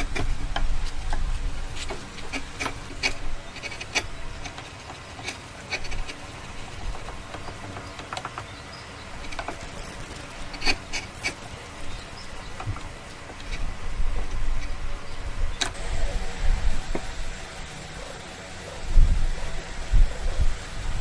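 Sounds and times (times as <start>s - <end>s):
faint steady background noise: 0.0s - 21.0s
wood knocks and clicks: 6.8s - 9.8s.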